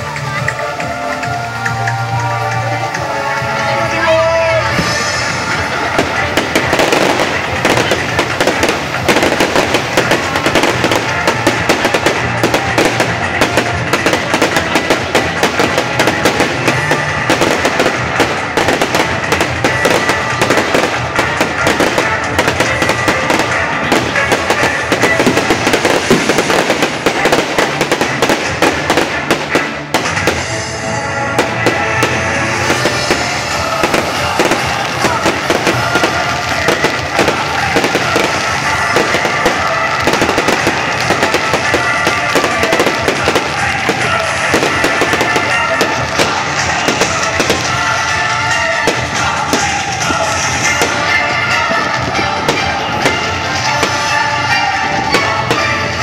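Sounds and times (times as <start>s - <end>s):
fireworks crackling and banging: 0.0s - 56.0s
music playing: 0.0s - 56.0s.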